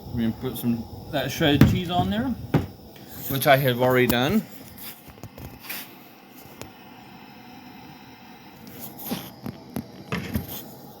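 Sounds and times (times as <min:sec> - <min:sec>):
food preparation taps and clicks: 0:01.6 - 0:02.8.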